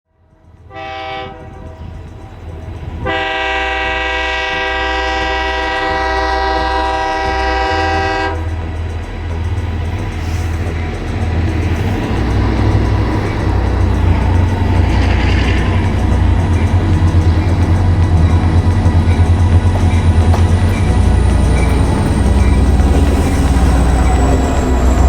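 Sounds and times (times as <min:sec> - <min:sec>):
low rumble of train: 0:00.1 - 0:25.0
train horn blast: 0:00.7 - 0:02.0, 0:03.0 - 0:08.8.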